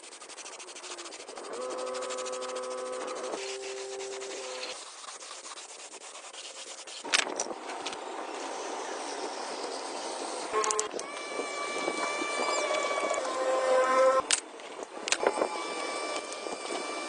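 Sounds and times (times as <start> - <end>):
sanding rasping strokes: 0.0 - 7.1, 8.3 - 14.2.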